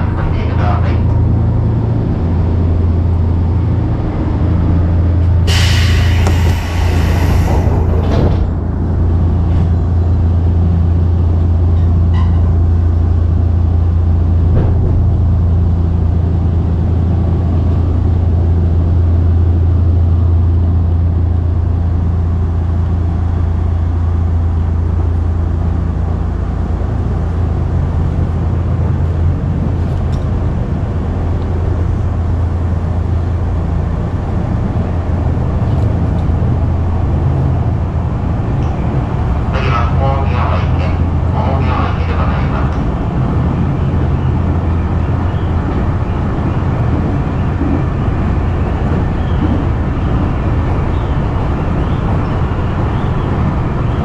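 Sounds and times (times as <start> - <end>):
train wheels on rails drone: 0.0 - 54.0
loud hiss: 5.5 - 7.9.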